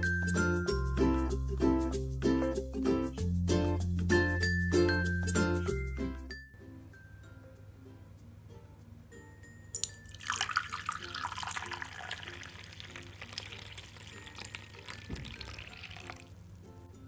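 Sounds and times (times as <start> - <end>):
soft background music: 0.0 - 17.0
liquid pouring: 9.8 - 16.4.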